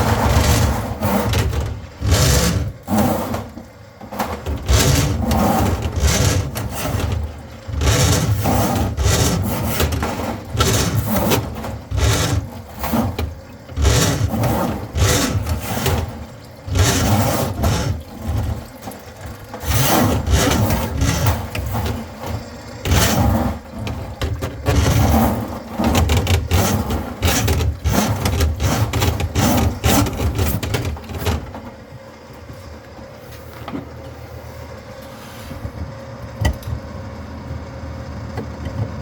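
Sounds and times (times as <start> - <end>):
scraping and rubbing: 0.0 - 3.6, 4.2 - 18.6, 19.6 - 31.5.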